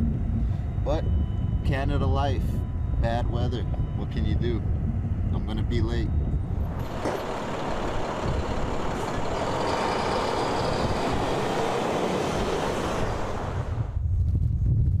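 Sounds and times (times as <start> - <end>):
motor vehicle running: 3.2 - 14.2.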